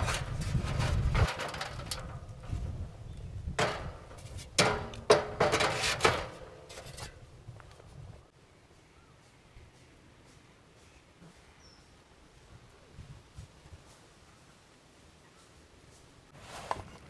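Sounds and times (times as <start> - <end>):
sharp knocks and clatters: 0.0 - 3.0, 3.6 - 7.9.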